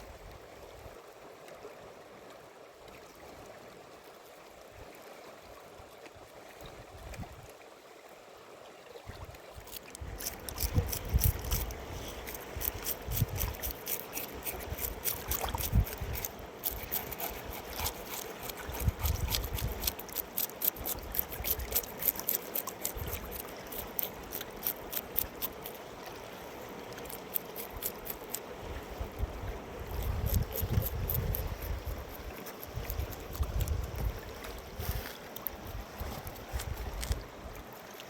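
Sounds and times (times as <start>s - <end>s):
river water running: 0.0s - 38.0s
water splashing: 9.0s - 38.0s
wind buffeting microphone: 10.0s - 19.9s, 28.6s - 37.5s.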